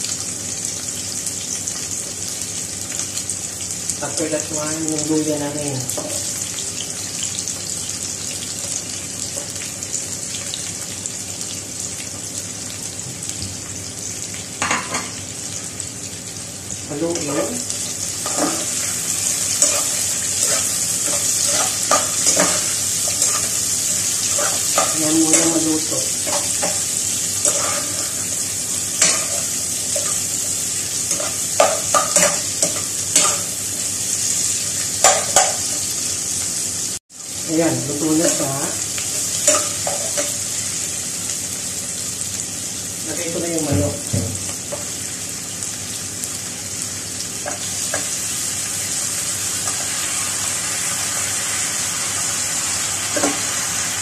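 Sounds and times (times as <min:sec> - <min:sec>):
food sizzling in hot oil: 0:00.0 - 0:54.0
metal spoon scraping a pot: 0:27.4 - 0:28.2.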